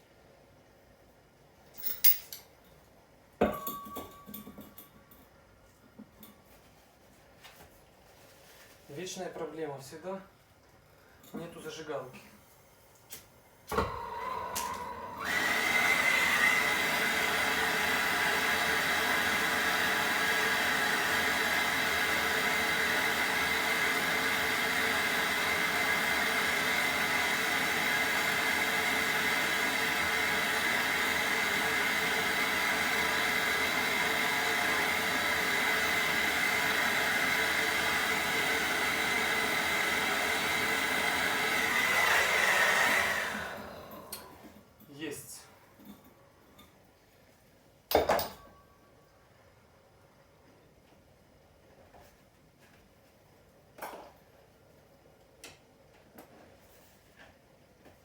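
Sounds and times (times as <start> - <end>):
gas torch hissing: 21.7 - 44.4.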